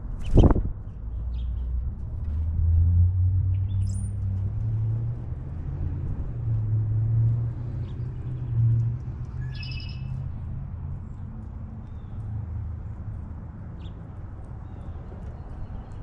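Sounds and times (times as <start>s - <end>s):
songbird chirp: 0.2s - 4.5s, 7.8s - 10.4s.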